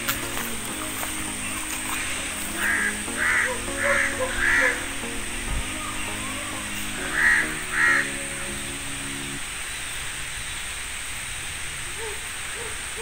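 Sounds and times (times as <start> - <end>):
music of held low notes: 0.0 - 9.4
bird calling: 0.3 - 9.4.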